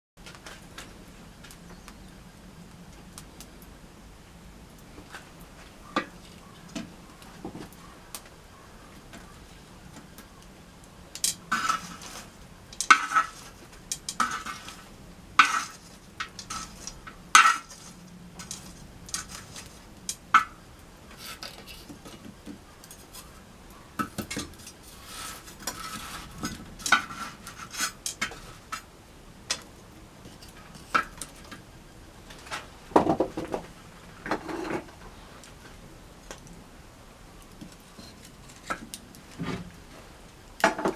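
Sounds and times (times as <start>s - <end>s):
metal objects clinking: 11.2s - 20.5s.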